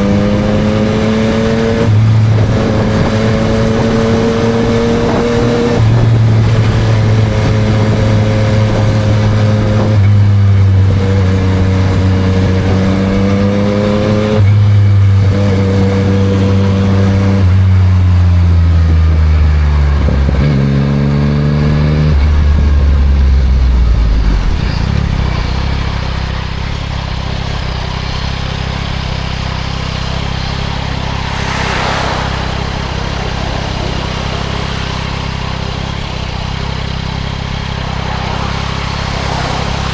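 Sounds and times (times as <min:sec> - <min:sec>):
motorcycle engine revving: 0:00.0 - 0:39.9
brief whoosh: 0:30.3 - 0:36.2
motorcycle engine idling: 0:33.3 - 0:39.9.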